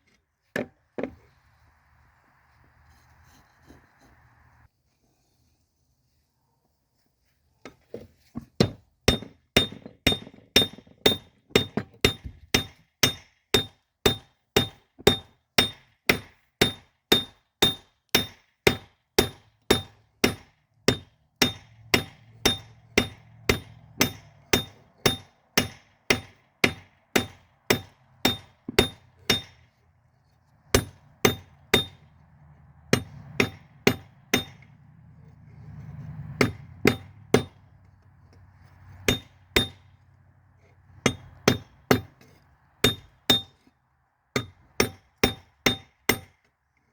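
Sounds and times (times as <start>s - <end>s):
hammer striking steel on anvil: 9.1s - 29.7s, 30.7s - 32.2s, 32.9s - 34.7s, 36.4s - 37.6s, 39.1s - 39.9s, 41.0s - 42.2s, 42.8s - 43.6s, 44.4s - 46.4s.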